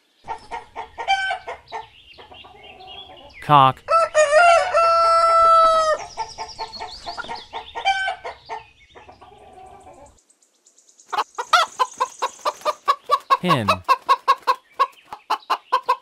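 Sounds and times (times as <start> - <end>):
rooster crowing: 3.9 - 6.0
rapid clucks: 11.1 - 16.0.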